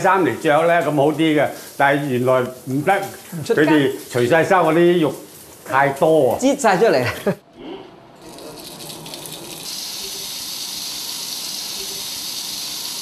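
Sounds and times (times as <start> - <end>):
meat sizzling in a frying pan: 9.5 - 13.0.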